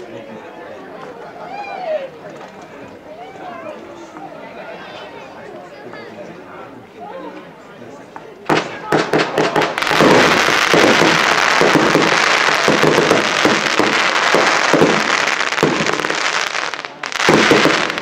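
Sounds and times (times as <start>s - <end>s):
fireworks bursting and crackling: 8.5s - 18.0s.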